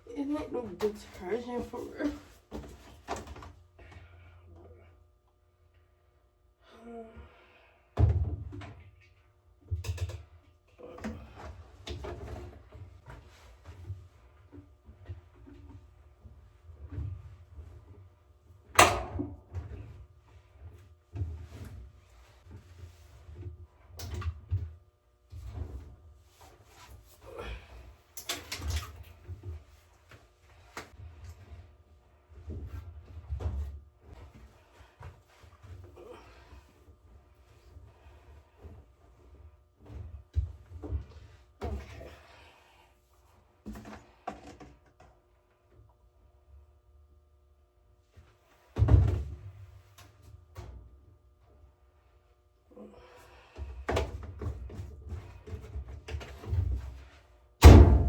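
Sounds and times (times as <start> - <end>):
knocks and thuds of handling: 48.8 - 49.7.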